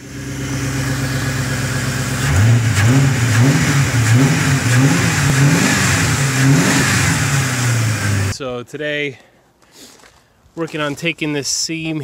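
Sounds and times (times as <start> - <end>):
car engine idling and revving: 0.0 - 8.4.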